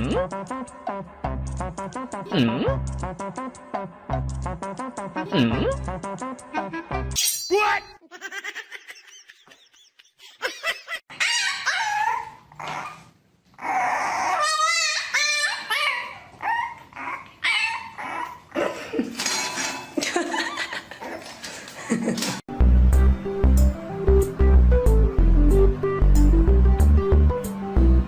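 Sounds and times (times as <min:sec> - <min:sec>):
dog whining and yipping: 0:11.1 - 0:18.6.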